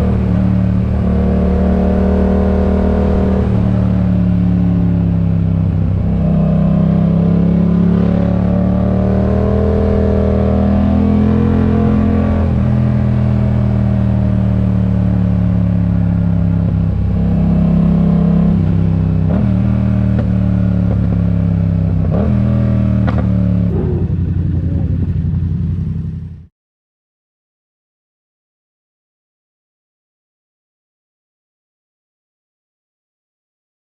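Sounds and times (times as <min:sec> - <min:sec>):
motorcycle engine running: 0:00.0 - 0:26.5.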